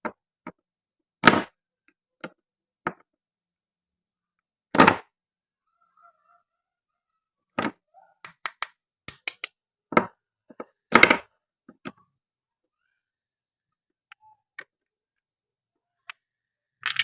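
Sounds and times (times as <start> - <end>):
toy knife cutting play fruit: 8.3 - 9.6
toy pieces knocking on board: 8.3 - 10.1.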